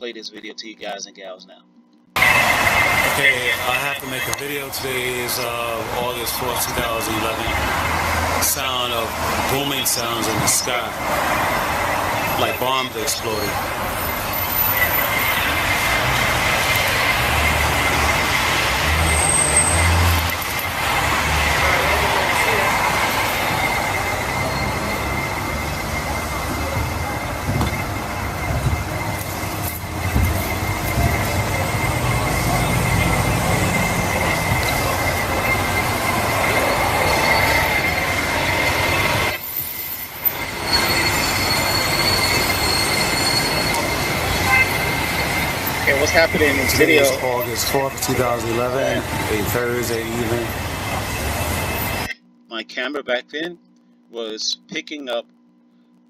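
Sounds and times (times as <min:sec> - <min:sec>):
city traffic noise: 0:02.2 - 0:52.1
metallic squealing drone: 0:02.2 - 0:52.1
high whistle-like tone: 0:11.6 - 0:52.1.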